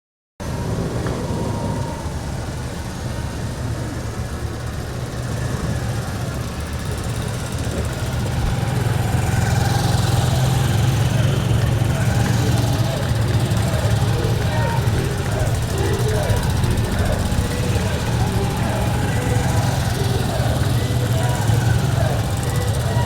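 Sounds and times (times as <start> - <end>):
motorcycle engines running: 0.4 - 23.0.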